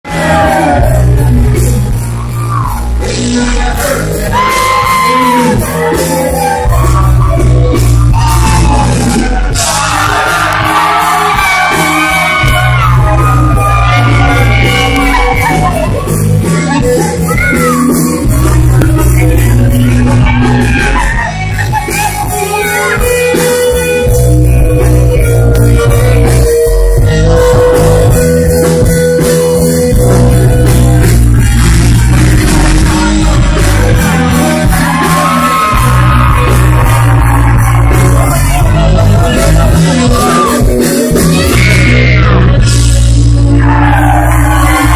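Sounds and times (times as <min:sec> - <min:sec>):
crowd shouts and whoops: 0:00.0 - 0:44.9
live country-rock music: 0:00.0 - 0:44.9
person singing: 0:00.0 - 0:44.9
person shouting: 0:04.2 - 0:05.7
voices singing: 0:30.6 - 0:44.9.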